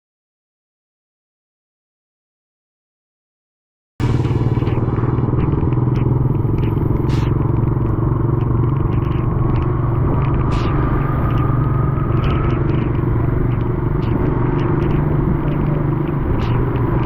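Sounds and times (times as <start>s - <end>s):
vehicle engine and road drone: 4.0s - 17.0s.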